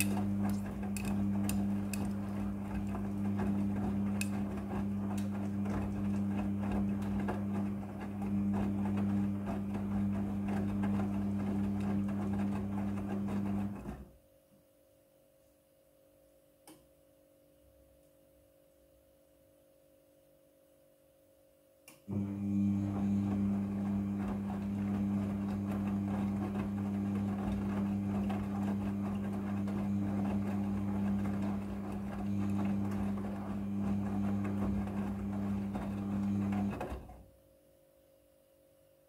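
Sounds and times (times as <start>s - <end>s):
electric motor humming and rattling: 0.0s - 13.9s, 22.1s - 37.2s.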